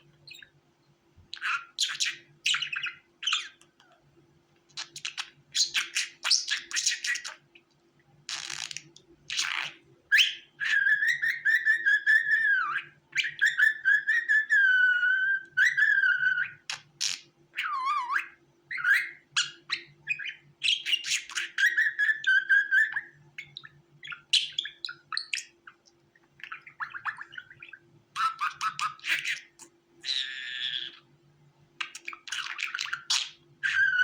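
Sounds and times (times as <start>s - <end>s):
budgerigar chirping and warbling: 0.3s - 0.5s, 1.3s - 3.7s, 4.8s - 7.4s, 8.3s - 25.8s, 26.4s - 31.1s, 31.8s - 34.0s.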